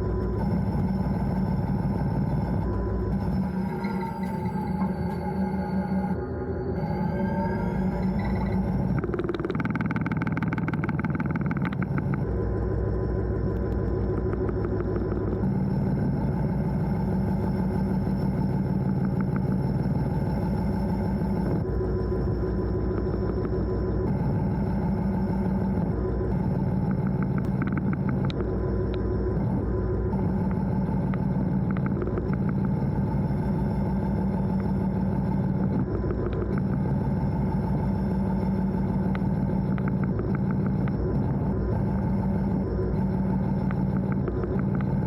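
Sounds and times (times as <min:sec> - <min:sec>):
diesel locomotive engine running: 0:00.0 - 0:45.0.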